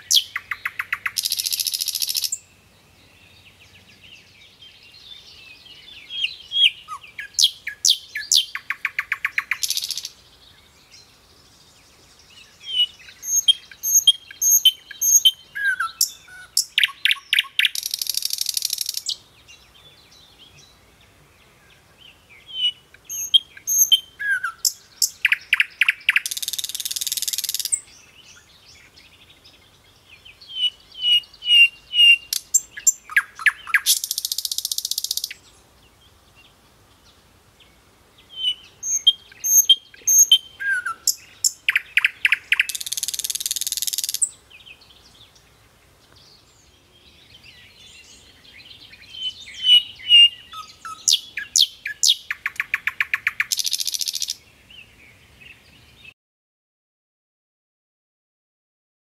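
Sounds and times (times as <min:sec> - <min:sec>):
songbird singing trills: 0:00.0 - 0:56.2.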